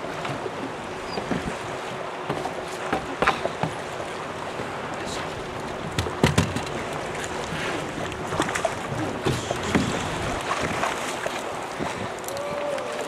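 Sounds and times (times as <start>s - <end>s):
water sloshing and splashing: 0.0s - 13.0s
wind on microphone: 7.4s - 13.0s.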